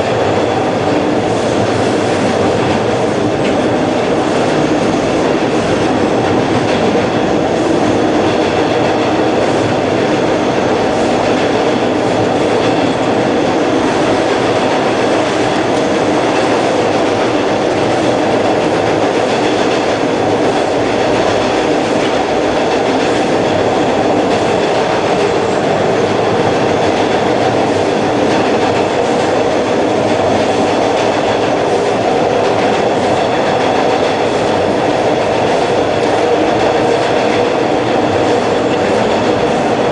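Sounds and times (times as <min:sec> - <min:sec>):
subway wheels rumbling on rail: 0:00.0 - 0:39.9.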